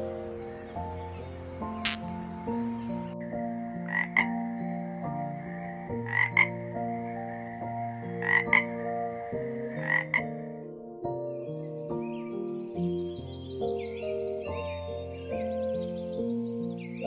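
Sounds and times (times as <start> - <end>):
soft background music: 0.0 - 17.0
frog croaking: 1.8 - 2.3, 3.5 - 10.6.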